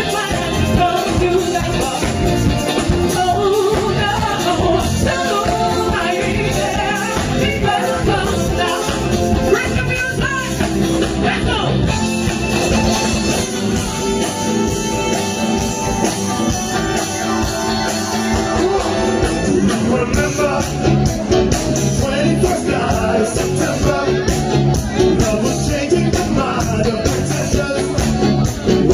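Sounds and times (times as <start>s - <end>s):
person singing: 0.0s - 10.6s, 21.8s - 28.9s
live band playing: 0.0s - 28.9s.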